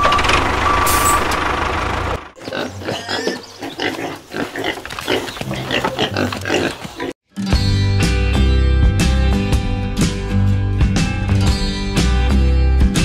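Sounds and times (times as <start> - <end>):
vehicle engine running: 0.0 - 2.7
pigs grunting: 2.4 - 7.2
music: 7.2 - 13.0.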